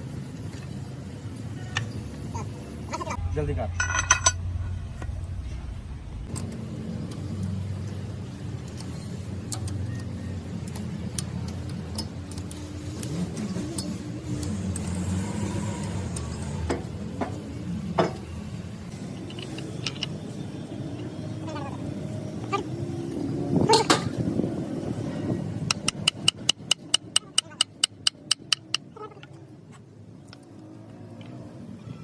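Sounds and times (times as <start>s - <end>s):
engine humming: 0.0s - 32.0s
metallic clicks and taps: 25.7s - 28.9s.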